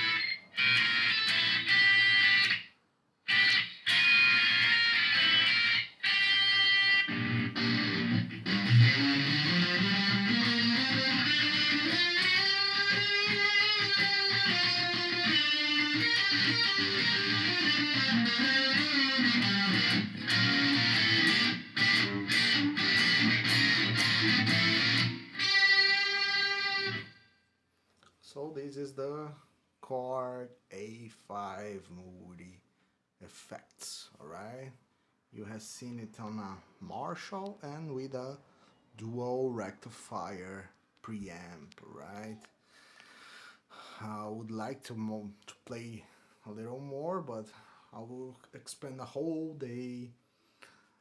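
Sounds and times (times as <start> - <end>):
electric guitar with effects: 0.0 - 2.7, 3.3 - 27.2.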